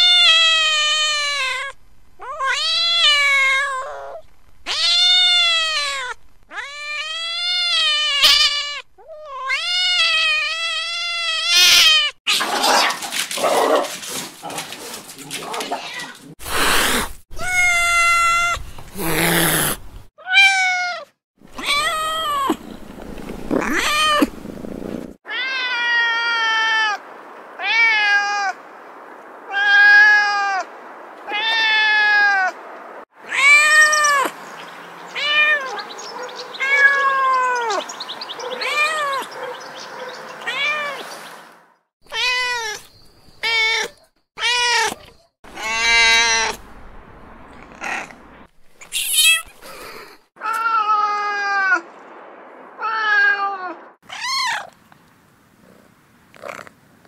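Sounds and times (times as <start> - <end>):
cat meowing: 0.0 - 12.4, 15.7 - 22.8, 23.5 - 24.3, 25.3 - 27.0, 31.3 - 32.6, 33.3 - 34.3, 36.6 - 37.8, 38.6 - 39.3, 40.4 - 41.0, 42.1 - 46.6, 48.8 - 49.5, 52.8 - 54.8.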